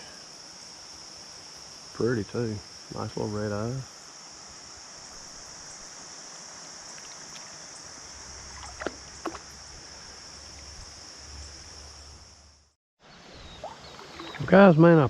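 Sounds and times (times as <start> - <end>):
high-pitched insect chorus: 0.0 - 12.8
creek water running: 1.8 - 11.8, 13.1 - 15.0.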